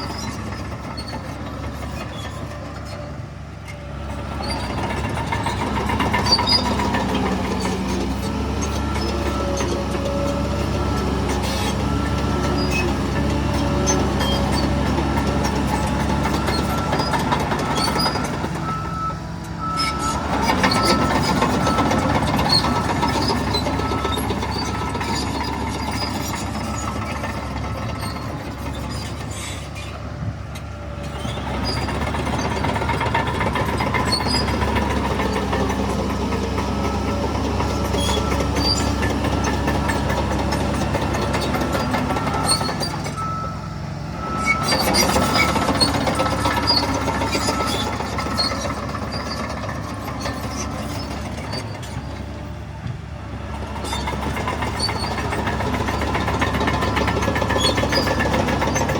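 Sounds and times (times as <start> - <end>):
bulldozer diesel engine working: 0.0 - 58.9
reversing alarm beeping: 14.2 - 28.5, 31.4 - 49.7.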